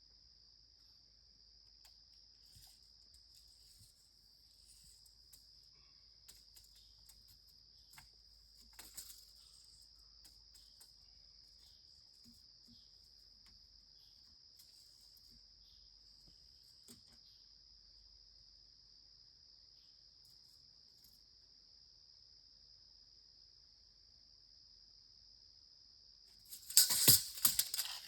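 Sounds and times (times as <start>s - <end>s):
crickets chirring: 0.0s - 28.0s
small clicks: 26.5s - 28.0s.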